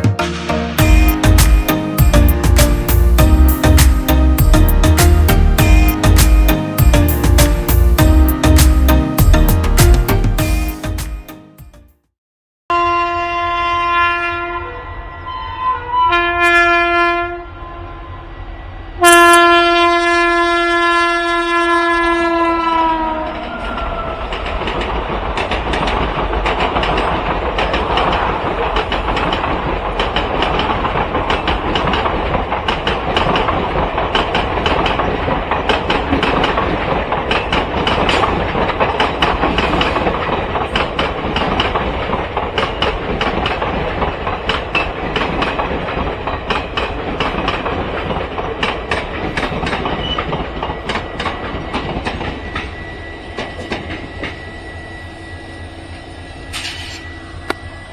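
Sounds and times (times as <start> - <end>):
locomotive horn blasts: 12.7 - 17.6, 19.0 - 23.4
train wheels clacking over rail joints: 23.2 - 52.8, 56.5 - 57.6.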